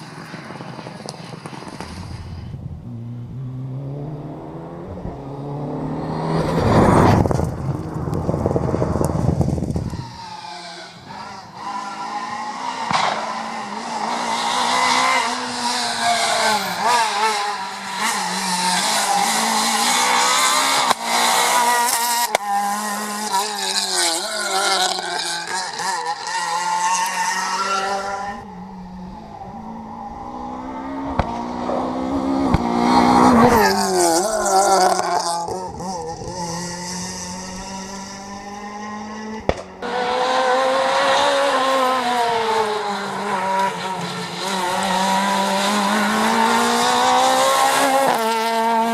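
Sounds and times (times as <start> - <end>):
car passing by: 0.0 - 10.0
rally car engines revving: 0.0 - 48.9
tyre squeal: 9.7 - 17.2.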